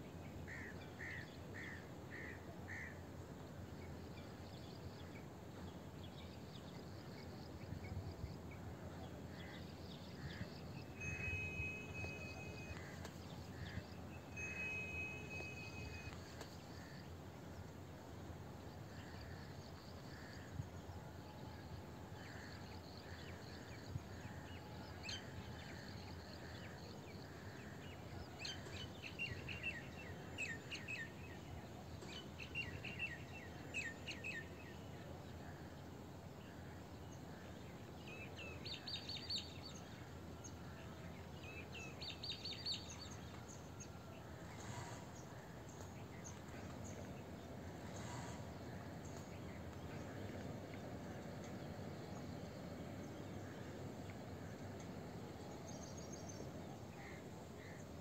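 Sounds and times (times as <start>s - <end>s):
steady low background noise: 0.0s - 58.0s.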